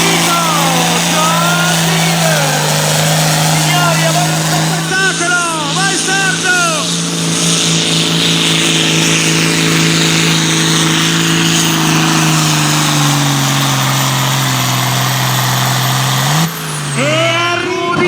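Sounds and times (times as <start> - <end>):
exhaust hiss: 0.0 - 11.0
tractor engine at high revs: 0.0 - 18.0.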